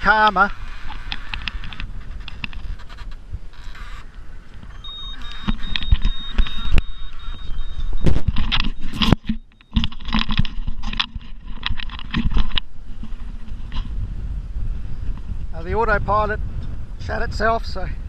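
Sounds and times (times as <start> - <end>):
rushing wind: 0.0 - 18.0
autopilot alarm beeping: 3.7 - 10.3.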